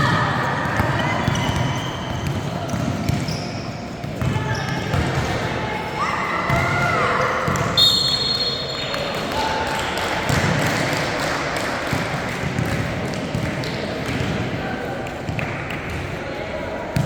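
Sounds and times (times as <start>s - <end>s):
ball bouncing on court: 0.0s - 5.5s, 6.5s - 8.1s, 9.3s - 10.9s, 11.9s - 14.6s
referee whistle blowing: 7.8s - 8.9s.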